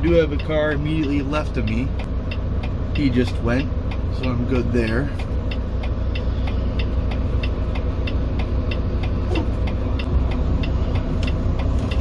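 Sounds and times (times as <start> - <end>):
diesel truck engine idling: 0.0 - 12.0
turn signal ticking: 0.0 - 12.0.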